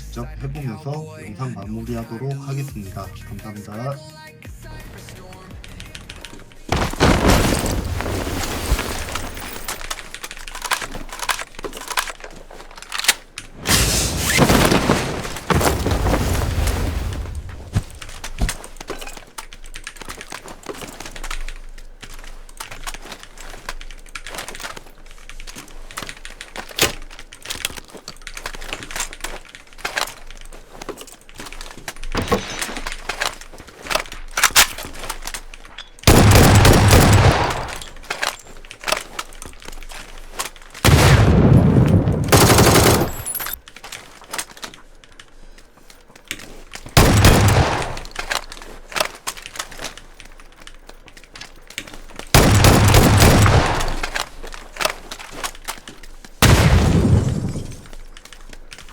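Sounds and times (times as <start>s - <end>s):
video game gunshots: 36.0s - 38.3s, 40.8s - 43.6s, 47.0s - 48.3s, 52.3s - 54.3s, 56.4s - 58.0s.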